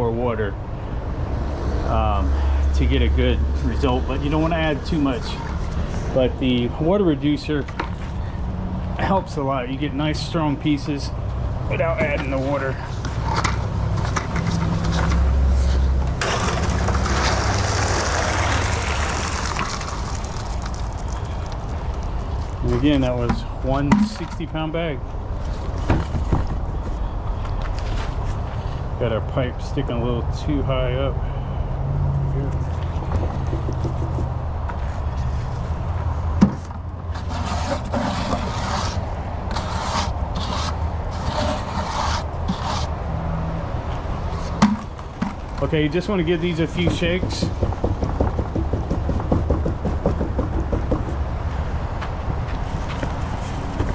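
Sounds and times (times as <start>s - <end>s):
concrete mixer humming: 16.1s - 24.2s
wet concrete rushing: 16.2s - 24.2s, 37.2s - 42.9s.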